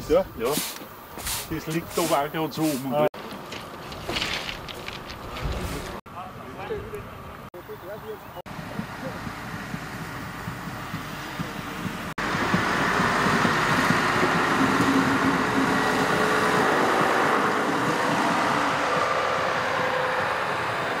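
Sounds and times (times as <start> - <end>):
diesel railcar rumbling past: 8.5 - 21.0.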